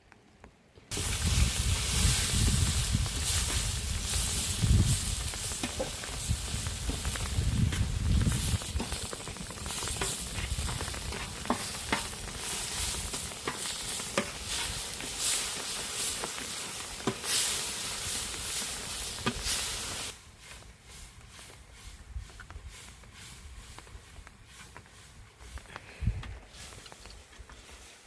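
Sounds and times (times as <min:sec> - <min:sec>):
fish sizzling in hot oil: 0:00.9 - 0:20.2.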